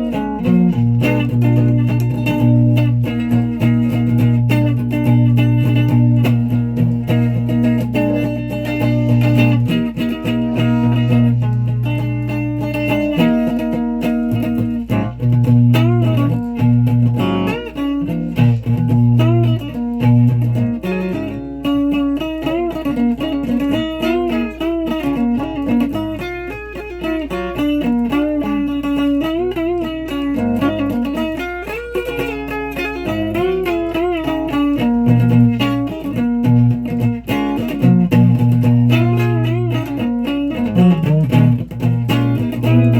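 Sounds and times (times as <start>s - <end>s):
guitar played with a pick: 0.0s - 42.9s.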